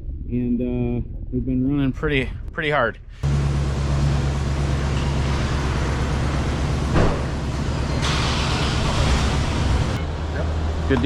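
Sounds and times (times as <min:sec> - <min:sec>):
heavy vehicle engine droning: 0:03.2 - 0:11.0
hiss: 0:07.9 - 0:10.0.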